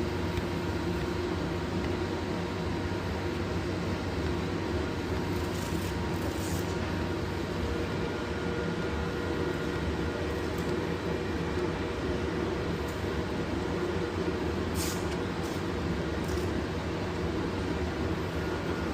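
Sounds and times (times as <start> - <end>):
low machine hum: 0.0 - 18.9
machine hiss: 14.7 - 16.4.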